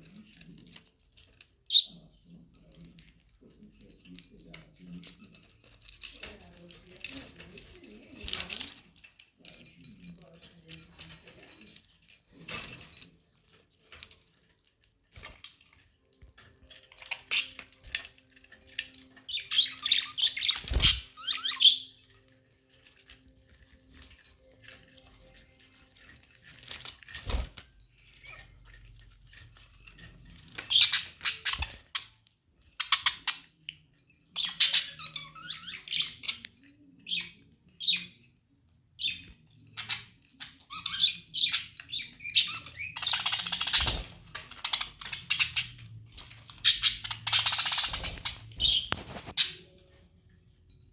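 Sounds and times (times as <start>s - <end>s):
budgerigars chirping and squawking: 0.0s - 9.1s, 16.8s - 22.3s, 30.1s - 32.2s, 32.8s - 49.8s.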